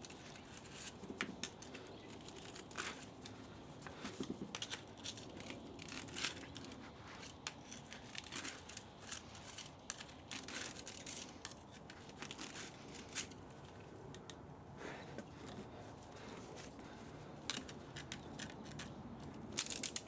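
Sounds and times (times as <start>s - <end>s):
metal parts snipped and clicking: 17.5s - 20.0s.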